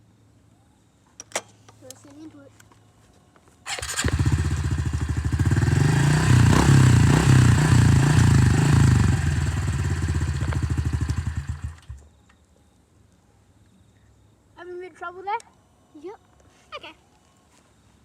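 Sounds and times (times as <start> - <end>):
dirt bike engine revving: 3.7 - 12.0.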